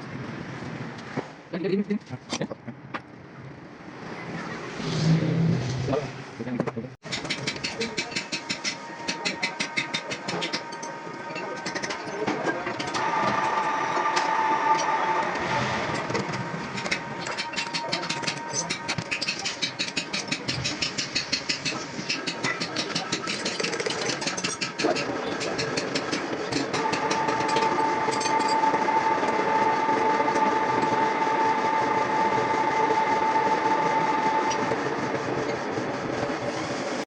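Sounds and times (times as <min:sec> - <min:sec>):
steady high whine: 0:07.1 - 0:23.2, 0:24.2 - 0:37.0.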